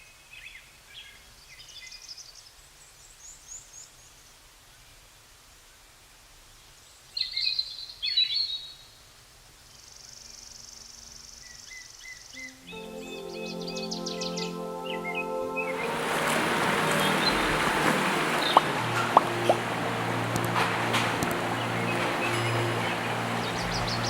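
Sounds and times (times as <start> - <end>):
songbirds chirping and singing: 12.4 - 24.0.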